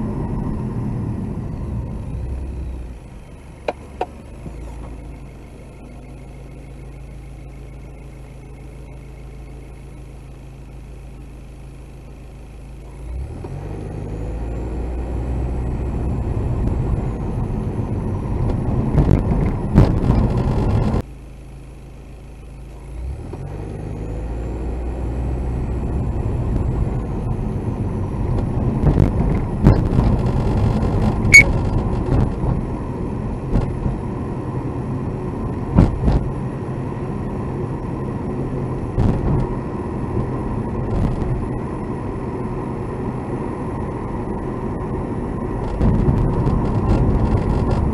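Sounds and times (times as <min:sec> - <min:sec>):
road and engine rumble: 0:00.0 - 0:47.9
knocks and rattles in car: 0:18.4 - 0:21.0, 0:28.3 - 0:32.7, 0:33.4 - 0:34.0, 0:35.7 - 0:36.4, 0:39.0 - 0:39.6, 0:45.6 - 0:47.9.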